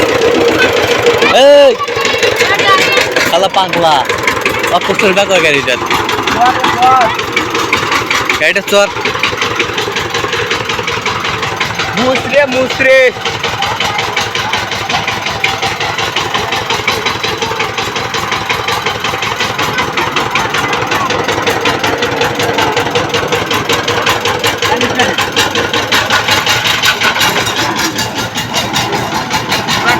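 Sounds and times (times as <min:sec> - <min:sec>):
power tiller engine running: 0:00.0 - 0:29.9.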